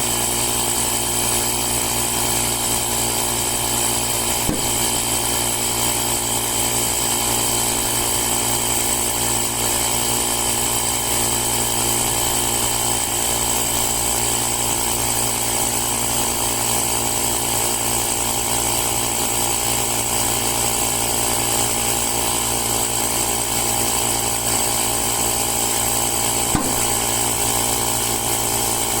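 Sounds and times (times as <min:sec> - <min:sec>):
air compressor humming: 0:00.0 - 0:16.6, 0:21.9 - 0:29.0.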